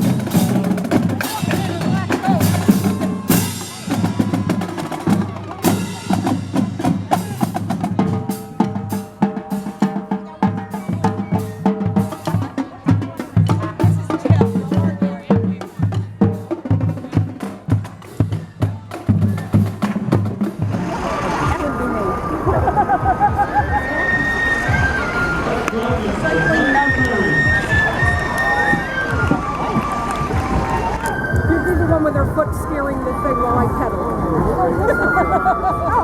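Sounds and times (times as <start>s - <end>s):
held melody notes: 0.0s - 15.7s, 21.0s - 36.0s
bass drum beats: 0.0s - 21.8s, 22.4s - 36.0s
snare drum rolls: 0.0s - 33.9s.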